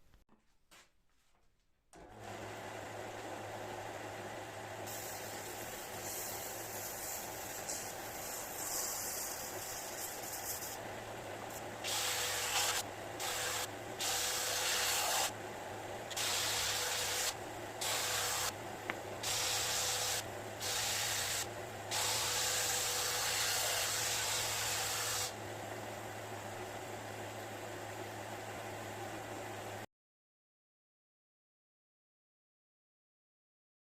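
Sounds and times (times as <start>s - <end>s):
spraying hiss: 4.9s - 10.8s.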